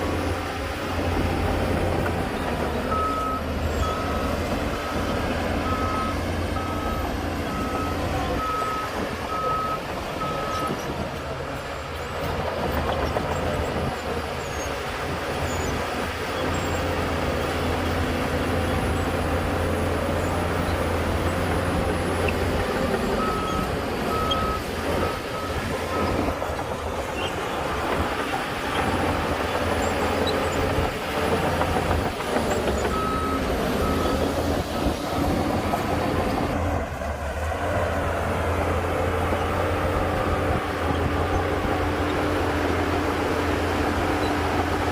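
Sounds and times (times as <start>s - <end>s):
heavy diesel machinery running: 0.0s - 44.9s
reversing alarm beeping: 2.9s - 10.8s, 23.0s - 26.5s.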